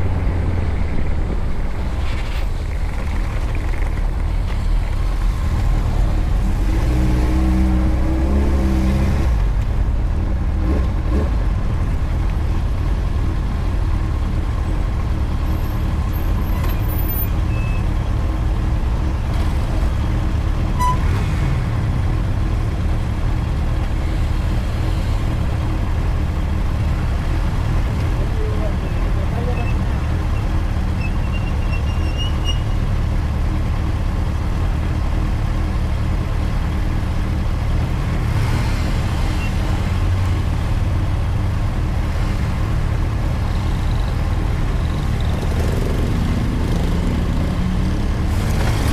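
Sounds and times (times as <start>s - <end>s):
motorcycle engine rumble: 0.0s - 48.9s
wind and road noise: 0.0s - 48.9s.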